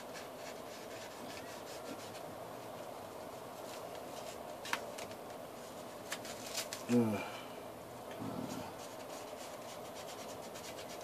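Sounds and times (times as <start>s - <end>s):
paper and tape rustling: 3.6s - 7.0s.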